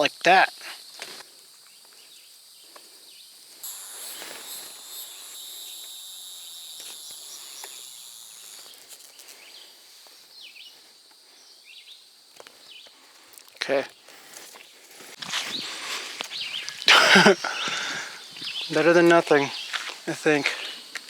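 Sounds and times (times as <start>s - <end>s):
high-pitched insect buzzing: 1.5s - 10.9s.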